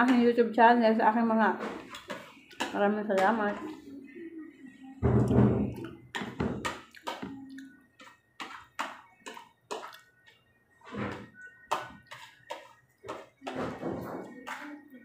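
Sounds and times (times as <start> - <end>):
wet chewing and lip smacks: 9.3 - 10.3.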